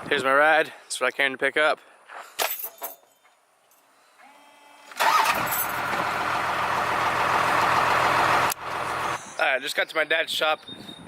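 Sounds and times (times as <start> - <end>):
vehicle engine starting and running: 4.9 - 9.2.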